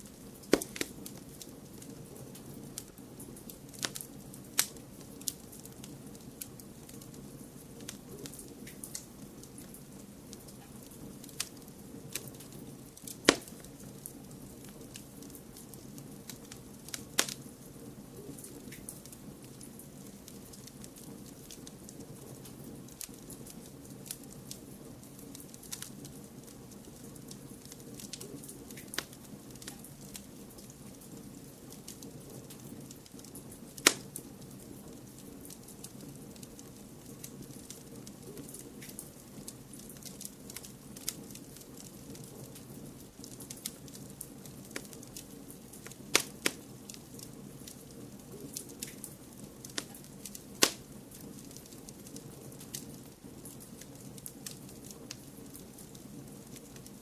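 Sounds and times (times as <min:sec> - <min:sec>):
wood fire crackling: 0:00.0 - 0:57.0
sharp pops: 0:00.5 - 0:01.0, 0:13.2 - 0:13.6, 0:46.1 - 0:46.6, 0:50.6 - 0:50.8.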